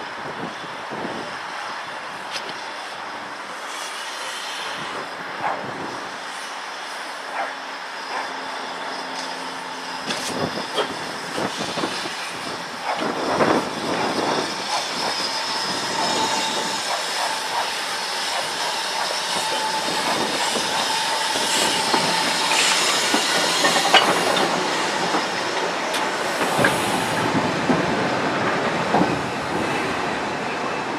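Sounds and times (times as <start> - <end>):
train running on rails: 0.0 - 30.9
thin steady squeal: 14.1 - 25.5.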